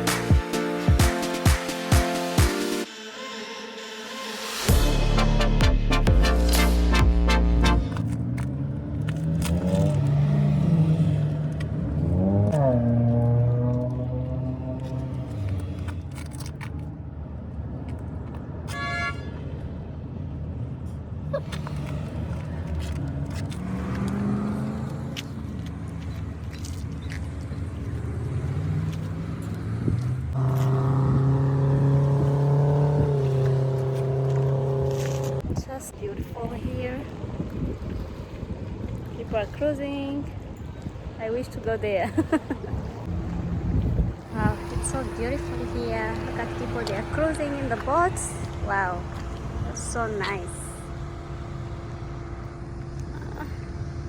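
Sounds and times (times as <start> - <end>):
car engine accelerating: 4.7 - 16.5, 21.4 - 26.8, 27.4 - 35.4, 43.0 - 54.0.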